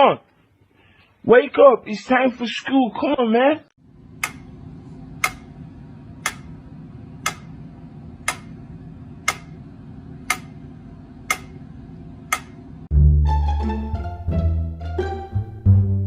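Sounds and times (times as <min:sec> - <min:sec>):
low steady hum: 0:03.8 - 0:13.0
clock ticking: 0:04.2 - 0:04.6, 0:05.2 - 0:05.5, 0:06.2 - 0:06.6, 0:07.2 - 0:07.6, 0:08.2 - 0:09.6, 0:10.2 - 0:11.7, 0:12.3 - 0:12.6.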